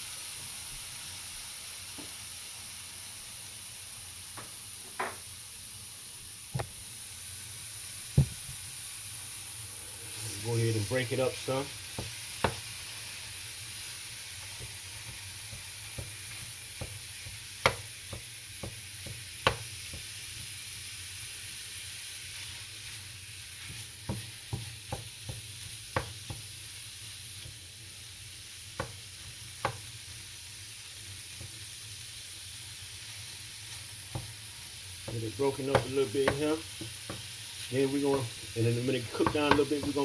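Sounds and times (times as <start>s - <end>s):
meat sizzling in a pan: 0.0s - 40.0s
utensil knocking and scraping pan: 35.1s - 40.0s.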